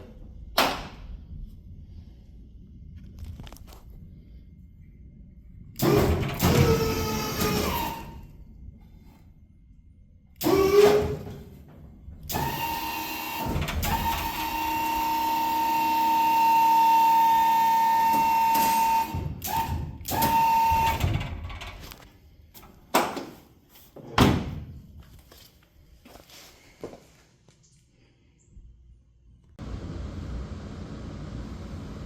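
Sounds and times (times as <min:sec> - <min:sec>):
power tool whining: 0:05.8 - 0:08.2, 0:12.3 - 0:21.1.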